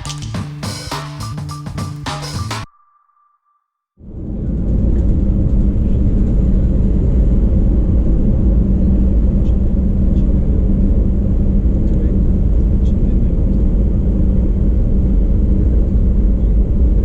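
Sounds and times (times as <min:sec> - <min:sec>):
jet cabin rumble: 0:04.0 - 0:17.0.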